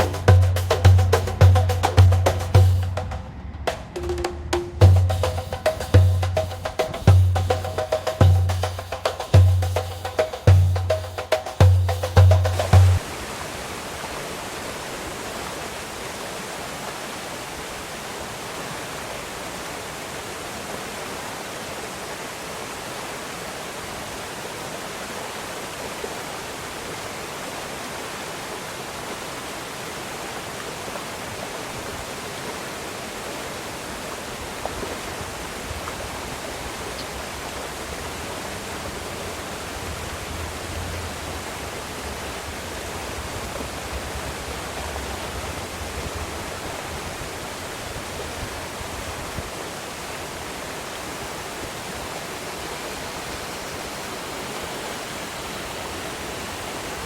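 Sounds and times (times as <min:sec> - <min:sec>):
faint low rumble: 0:00.0 - 0:07.5
river water rushing: 0:00.0 - 0:57.0.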